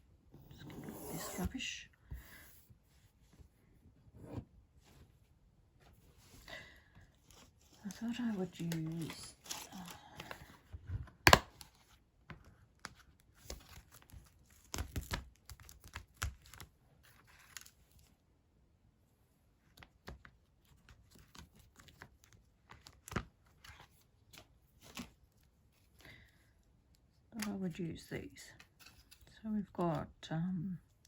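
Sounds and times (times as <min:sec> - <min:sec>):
paper and plastic rustling: 0:07.2 - 0:11.2.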